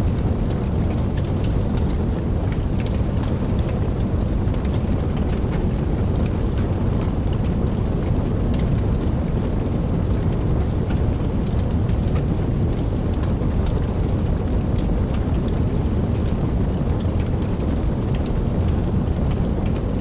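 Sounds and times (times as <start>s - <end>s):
campfire burning: 0.0s - 20.0s
fire crackles and pops: 0.0s - 20.0s.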